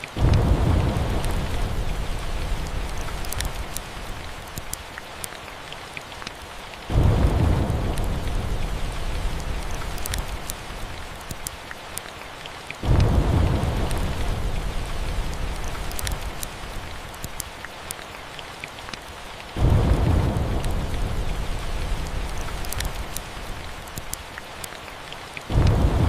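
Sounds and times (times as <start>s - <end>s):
faint log fire crackles: 0.0s - 26.0s
steady rain: 0.0s - 26.0s
thunder rolling: 0.2s - 3.8s, 6.9s - 11.0s, 12.8s - 16.4s, 19.6s - 23.2s, 25.5s - 26.0s.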